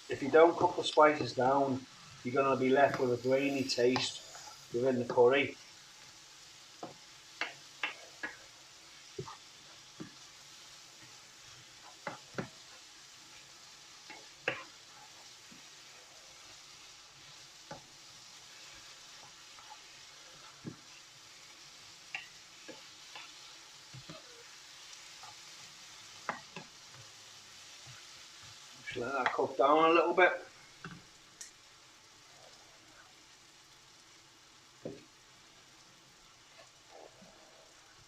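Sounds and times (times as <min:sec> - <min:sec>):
curry sizzling in a pan: 0:00.0 - 0:38.0
spoon stirring against pan: 0:02.2 - 0:05.3, 0:06.0 - 0:29.6, 0:34.7 - 0:38.0.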